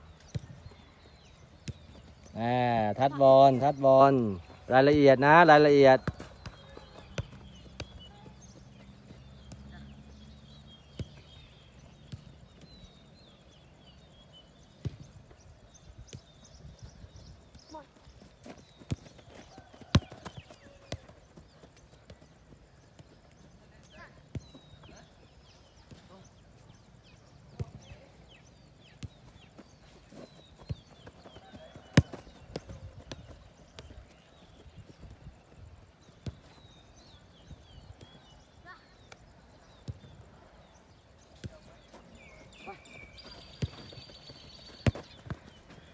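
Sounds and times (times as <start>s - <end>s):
small birds chirping: 0.0s - 45.9s
football kick thuds: 5.9s - 8.6s, 18.3s - 21.5s, 29.0s - 34.0s, 41.4s - 45.9s.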